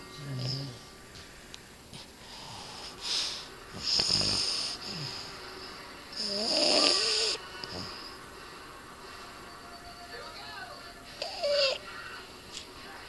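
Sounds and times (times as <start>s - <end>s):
dog snoring with whistle: 2.2s - 8.2s, 11.2s - 12.0s.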